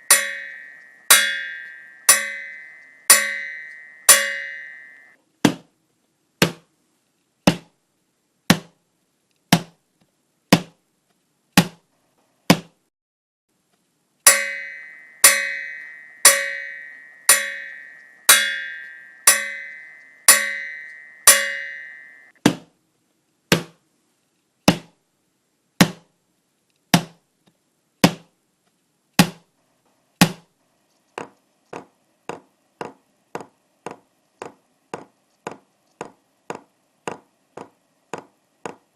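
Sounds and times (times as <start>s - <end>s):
ringing bell-like strikes: 0.0s - 5.2s, 14.3s - 22.3s
dry wood-block knocks: 7.4s - 7.8s, 31.2s - 38.9s.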